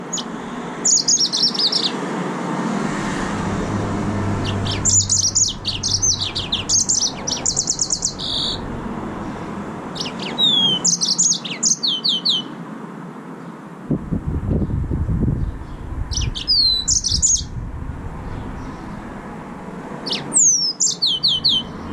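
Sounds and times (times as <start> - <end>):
finch singing: 0.0 - 2.0, 3.7 - 12.6, 15.3 - 17.6, 20.0 - 21.9.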